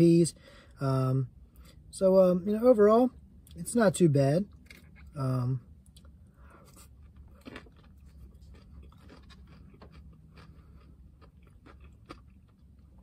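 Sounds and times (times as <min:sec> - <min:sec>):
low steady hum: 0:00.0 - 0:13.0
person chewing food: 0:05.9 - 0:13.0.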